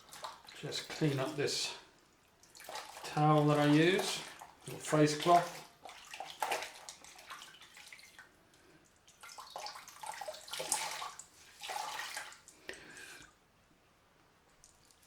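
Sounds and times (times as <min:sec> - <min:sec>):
water splashing from wrung cloth: 0:00.0 - 0:01.4, 0:02.0 - 0:08.3, 0:09.0 - 0:12.6.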